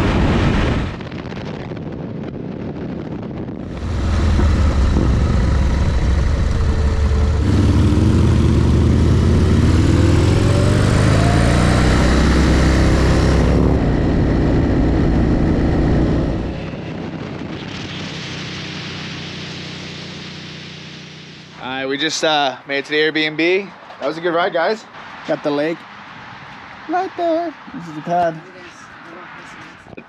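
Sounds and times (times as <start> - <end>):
wind rush: 0.0 - 19.4
motorcycle engine accelerating: 3.5 - 22.3.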